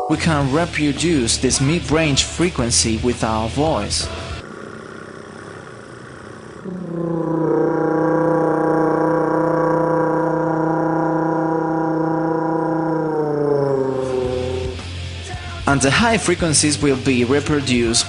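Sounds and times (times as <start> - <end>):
person imitating engine drone: 4.7 - 15.0.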